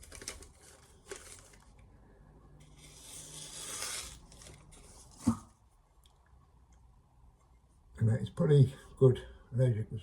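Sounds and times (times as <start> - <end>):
scraping rub: 2.7 - 5.1.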